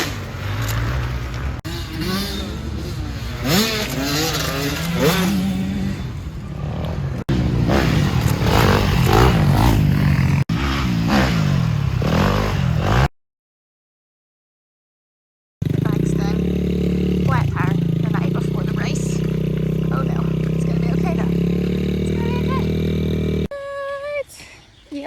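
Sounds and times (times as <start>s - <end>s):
dirt bike engines revving: 0.0s - 13.1s, 15.6s - 23.5s.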